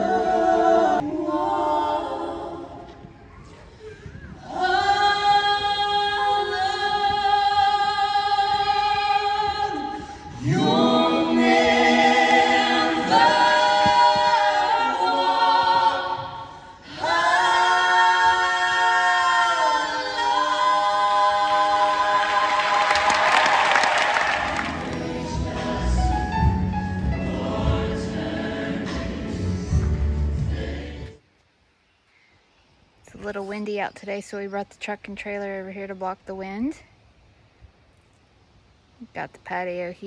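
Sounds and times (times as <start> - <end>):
choir singing a cappella: 0.0 - 3.1, 4.4 - 31.2
applause: 22.2 - 25.0.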